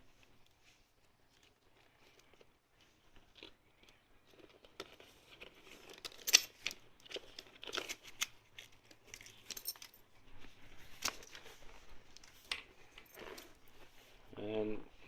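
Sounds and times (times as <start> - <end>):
helmet handling clicks and rustles: 4.7 - 13.9.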